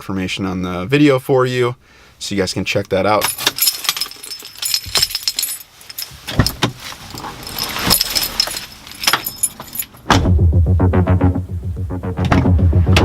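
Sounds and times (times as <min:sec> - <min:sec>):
metal jingling and clinking: 0:03.2 - 0:10.1.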